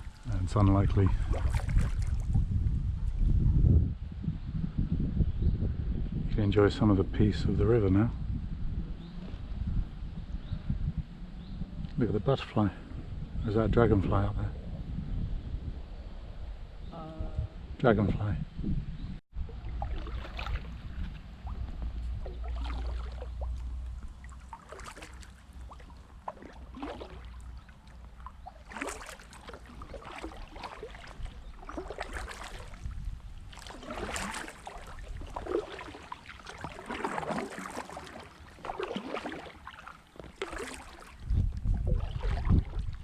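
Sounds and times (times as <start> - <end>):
paddle splashing in water: 0.0 - 2.5, 19.4 - 43.0
wind rumble on microphone: 0.0 - 39.4, 40.2 - 43.0.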